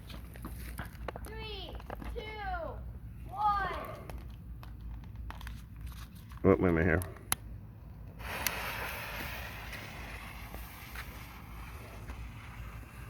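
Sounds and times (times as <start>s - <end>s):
firework crackles: 8.1s - 13.0s
firework hissing: 8.2s - 13.0s.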